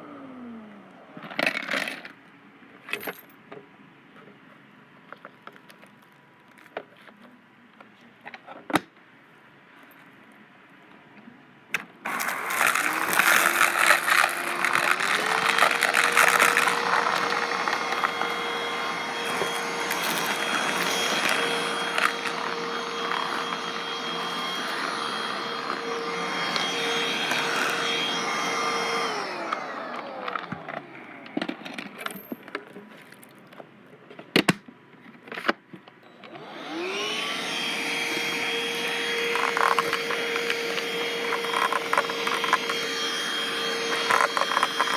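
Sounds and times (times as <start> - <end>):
vacuum cleaner motor whine: 0.0 - 1.2, 12.0 - 31.9, 36.1 - 44.9.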